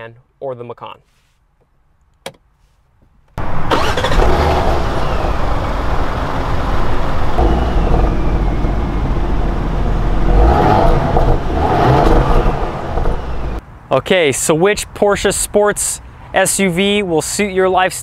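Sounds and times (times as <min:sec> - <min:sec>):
car engine idling: 0:03.4 - 0:13.6
car engine starting: 0:03.4 - 0:13.6
engine throttle blips: 0:03.4 - 0:13.6.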